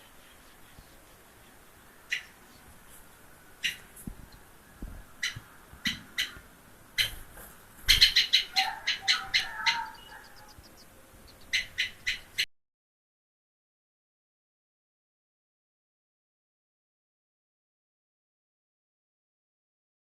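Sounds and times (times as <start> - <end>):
faint high bird trill: 0.0 - 2.7, 7.0 - 12.5
small bird chirping: 0.0 - 6.4, 7.0 - 12.5.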